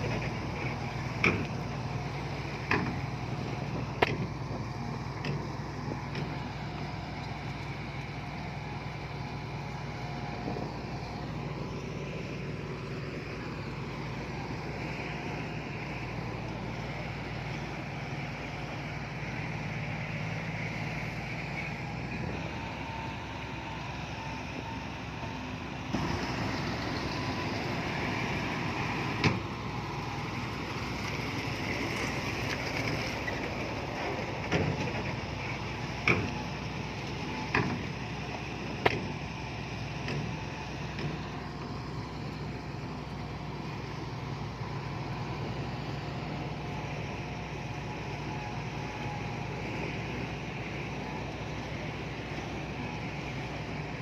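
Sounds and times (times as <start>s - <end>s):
heavy machinery diesel engine: 0.0s - 54.0s.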